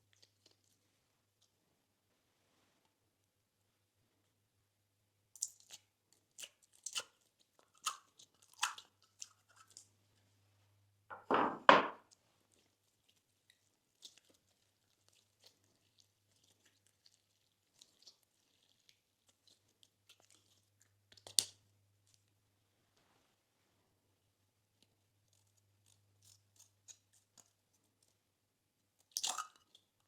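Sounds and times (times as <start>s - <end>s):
slime squishing: 5.4s - 9.9s, 12.4s - 22.3s, 24.7s - 28.2s.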